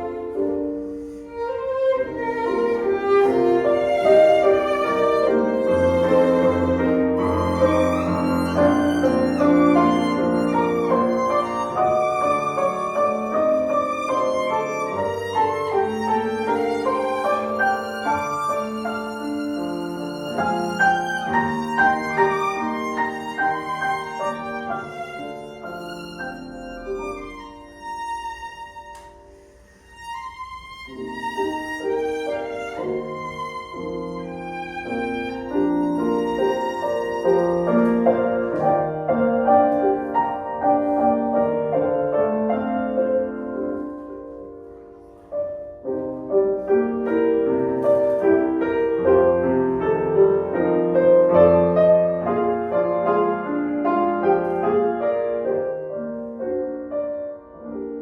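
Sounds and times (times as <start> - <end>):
violin playing slow melody: 0.0 - 42.0.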